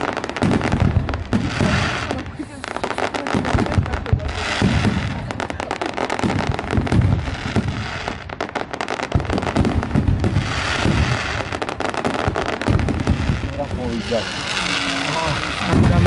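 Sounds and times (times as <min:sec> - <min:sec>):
deep firework booms: 0:00.0 - 0:16.0
fireworks crackling pops: 0:00.0 - 0:16.0
hissing crackle: 0:00.0 - 0:16.0.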